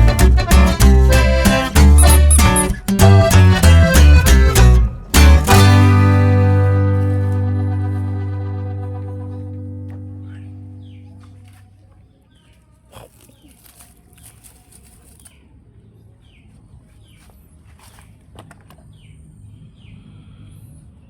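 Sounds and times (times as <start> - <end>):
small bird chirping: 2.0 - 2.8.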